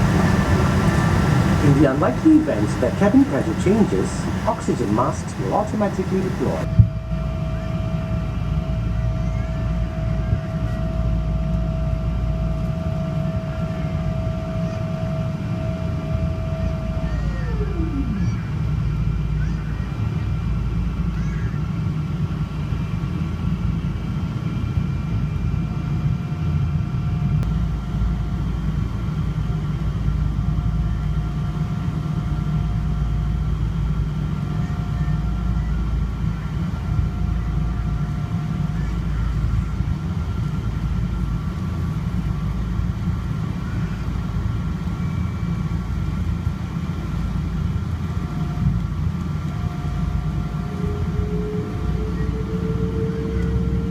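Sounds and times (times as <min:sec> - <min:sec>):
aircraft cabin rumble: 0:00.0 - 0:06.7
high whining tones: 0:00.0 - 0:06.7
faint hum: 0:00.0 - 0:22.8, 0:27.3 - 0:53.9.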